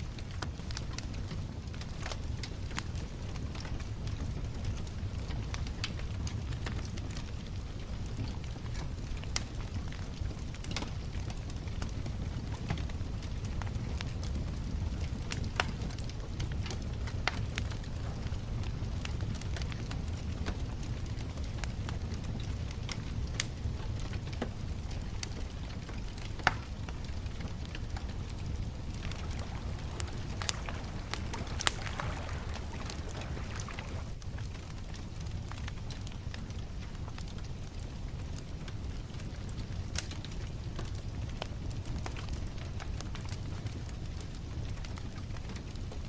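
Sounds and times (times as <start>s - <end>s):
bonfire flames rumbling: 29.0s - 34.2s
burning wood crackling and popping: 29.0s - 34.2s.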